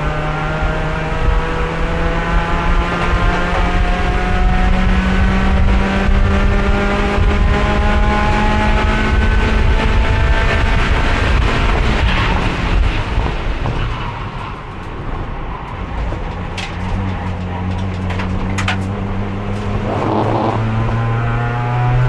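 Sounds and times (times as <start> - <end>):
wind and road noise: 0.0 - 22.0
race car engine under load: 14.8 - 22.0.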